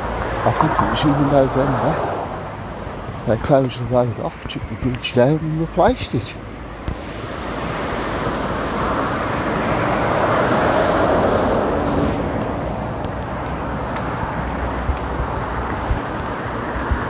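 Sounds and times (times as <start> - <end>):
steady traffic noise: 0.0 - 17.0
vehicle passing close: 0.0 - 17.0.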